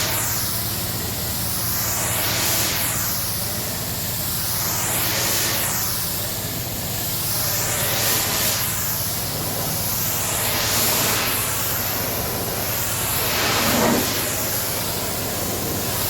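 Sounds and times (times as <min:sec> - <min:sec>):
pressure washer jet hissing: 0:00.0 - 0:16.0
pump low hum: 0:06.2 - 0:16.0.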